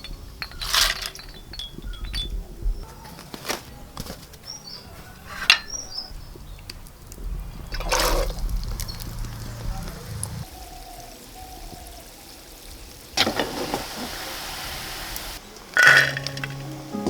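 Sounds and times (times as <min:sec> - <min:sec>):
kitchen utensils and dishes clinking: 0:00.0 - 0:06.2, 0:13.2 - 0:14.6, 0:15.7 - 0:16.7.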